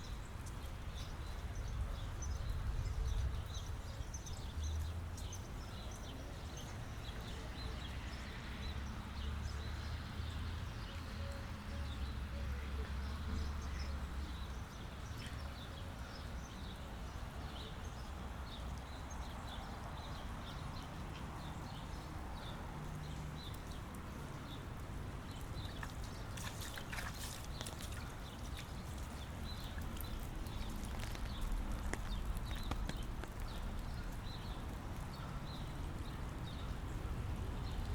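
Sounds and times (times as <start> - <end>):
rain: 0.0 - 37.9
ticks of raindrops: 0.0 - 37.9.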